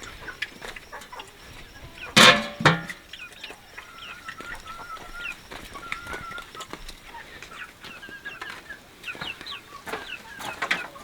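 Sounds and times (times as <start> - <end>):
chickens clucking: 0.0 - 11.0
sharp knocks: 2.2 - 3.0.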